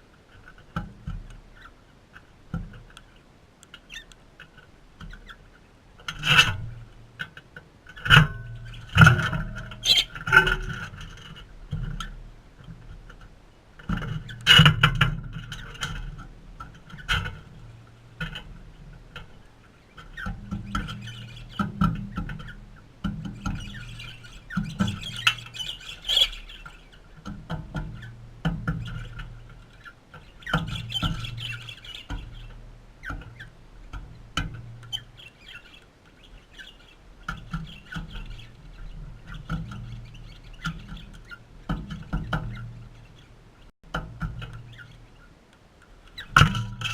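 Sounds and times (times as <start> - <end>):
parrots squawking and screeching: 9.8 - 10.2, 23.8 - 27.0
scratchy clicking and chattering: 23.2 - 28.2.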